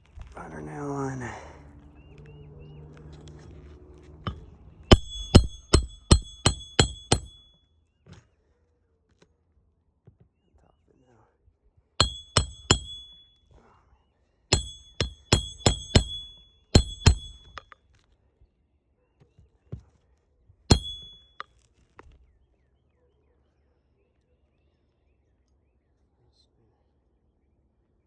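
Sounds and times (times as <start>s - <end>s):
hatchet striking nail: 4.2s - 7.6s, 12.0s - 13.4s, 14.5s - 17.8s, 20.7s - 21.5s.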